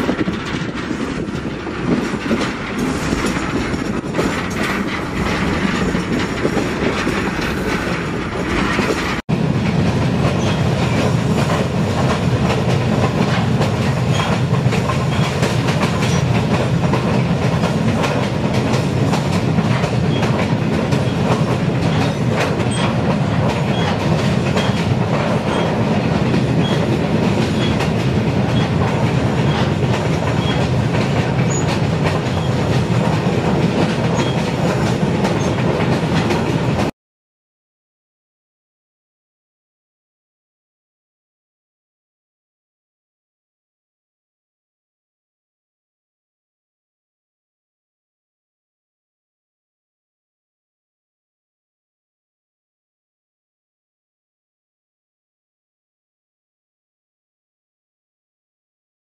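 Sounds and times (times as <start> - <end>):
train wheels rumbling on rails: 0.0 - 36.9.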